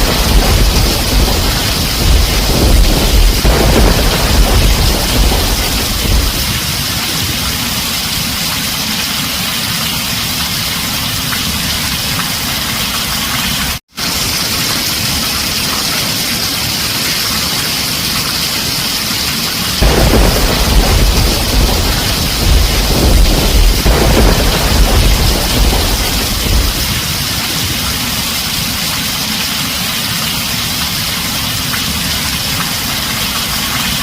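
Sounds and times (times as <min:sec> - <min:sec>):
thunder rumbling: 0:00.0 - 0:08.4, 0:19.8 - 0:29.0
heavy rain on a tin roof: 0:00.0 - 0:34.0.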